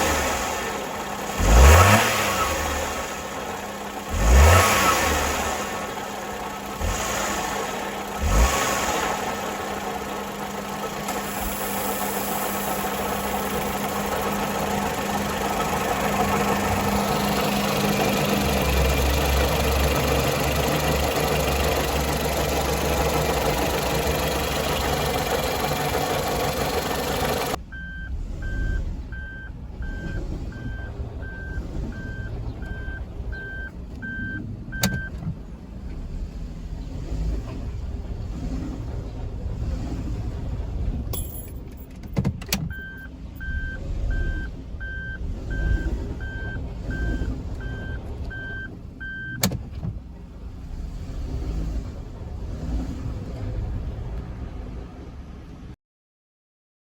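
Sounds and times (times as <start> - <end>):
car drivetrain humming: 0.0 - 55.7
electronic beeps: 27.7 - 35.1.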